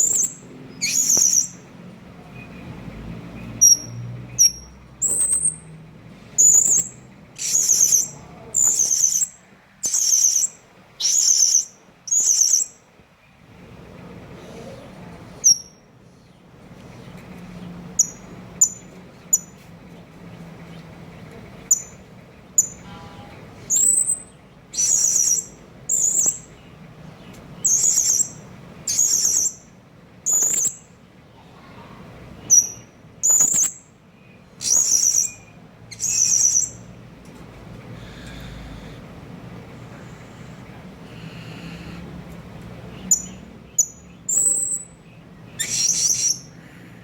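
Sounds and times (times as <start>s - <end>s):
parrot chirping and calling: 0.0s - 1.8s, 3.5s - 5.7s, 6.4s - 12.8s, 15.4s - 15.8s, 18.0s - 19.5s, 23.7s - 26.6s, 27.6s - 30.9s, 32.4s - 33.9s, 34.6s - 36.9s, 42.9s - 46.6s.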